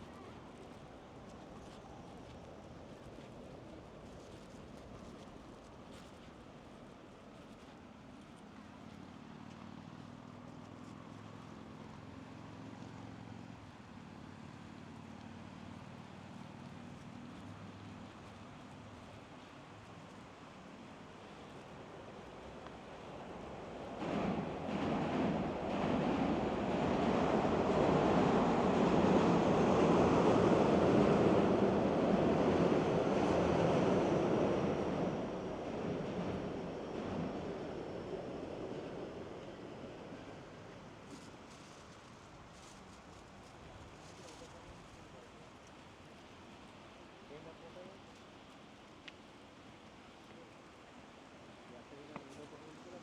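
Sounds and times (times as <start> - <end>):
soft even hiss: 38.1 - 53.0.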